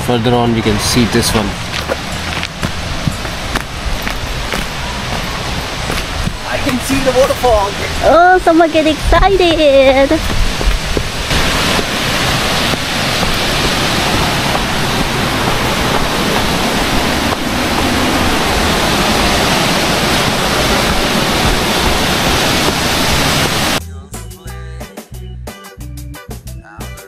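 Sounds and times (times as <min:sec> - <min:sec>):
waterfall rushing: 0:00.5 - 0:23.8
music with a beat: 0:23.8 - 0:27.0.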